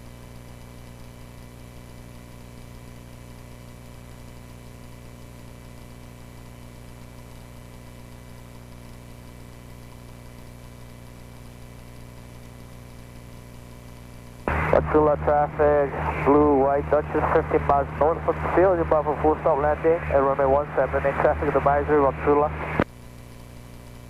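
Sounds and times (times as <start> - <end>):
light aircraft engine droning: 14.5 - 22.8.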